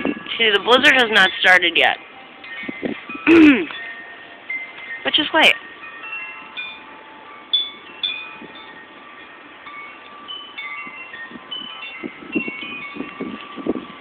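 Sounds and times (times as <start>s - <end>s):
wind rumbling on microphone: 0.0s - 3.8s, 7.6s - 14.0s
wind chimes ringing: 0.0s - 14.0s.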